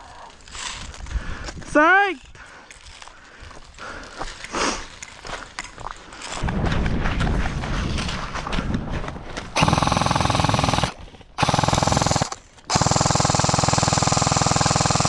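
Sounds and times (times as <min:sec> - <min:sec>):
airsoft gun firing full auto: 0:09.6 - 0:15.0.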